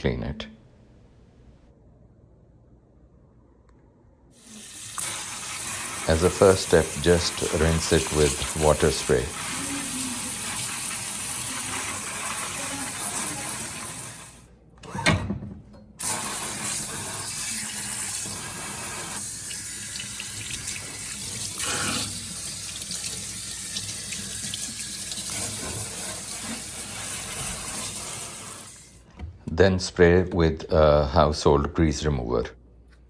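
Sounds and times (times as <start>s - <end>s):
water spray hissing: 4.4s - 14.5s, 16.0s - 29.0s.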